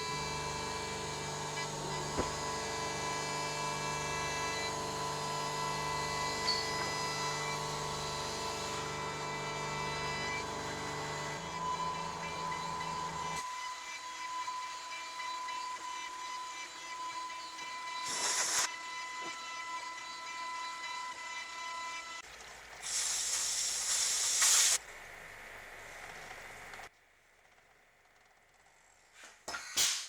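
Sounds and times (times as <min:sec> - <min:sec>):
workshop machine whining: 0:00.0 - 0:22.2
loud hiss bursts: 0:18.0 - 0:18.7, 0:22.8 - 0:24.8.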